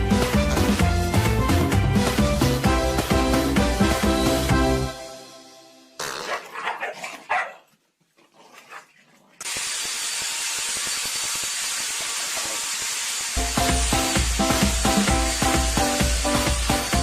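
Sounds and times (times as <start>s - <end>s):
dog barking and yipping: 6.3s - 7.8s.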